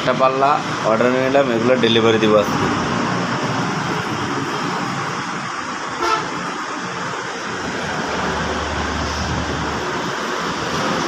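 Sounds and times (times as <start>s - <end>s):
road traffic noise: 0.0s - 11.0s
vehicle horn toot: 6.0s - 6.5s.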